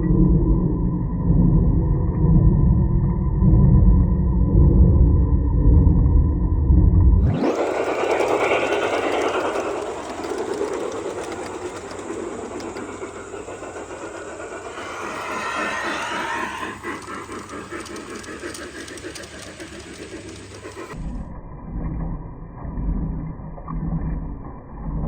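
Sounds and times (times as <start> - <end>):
wheels clicking over rails: 7.2 - 21.1
train running on track: 7.2 - 21.2.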